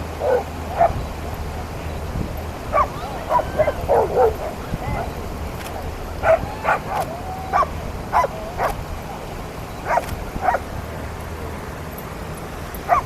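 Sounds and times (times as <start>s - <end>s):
dog yipping: 2.7s - 5.2s, 6.2s - 8.8s, 9.9s - 10.6s.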